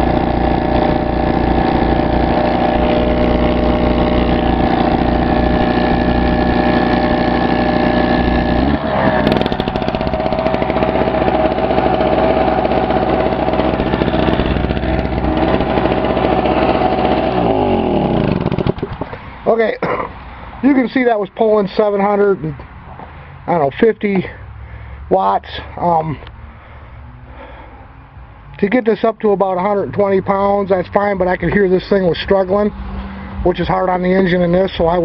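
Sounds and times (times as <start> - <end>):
air compressor running: 0.0 - 19.4
generator engine straining: 0.0 - 19.8.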